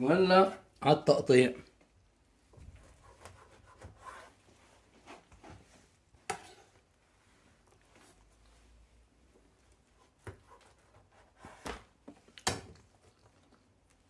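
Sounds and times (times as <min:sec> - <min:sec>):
faint scraping and rubbing: 0:02.6 - 0:09.1.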